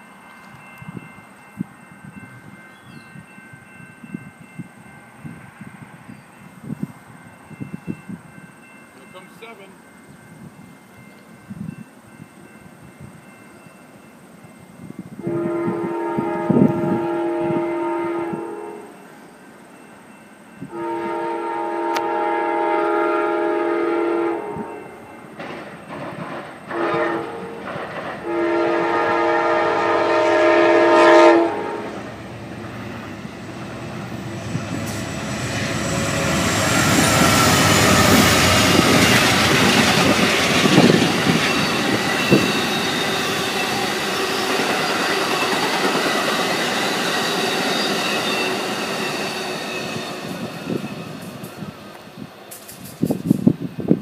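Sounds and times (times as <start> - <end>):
train wheels rumbling on rails: 0.0 - 54.0
train horn blasts: 15.2 - 19.0, 20.6 - 25.1, 26.7 - 32.1, 34.3 - 45.6.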